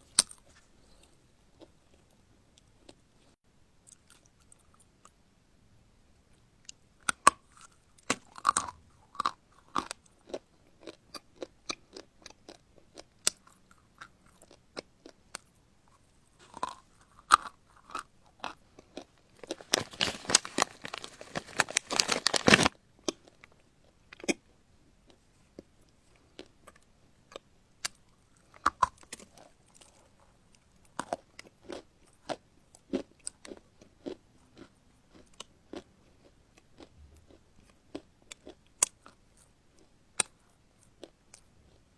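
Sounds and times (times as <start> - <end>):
person chewing crunchy food: 7.6 - 15.5, 16.3 - 23.5, 30.9 - 39.2.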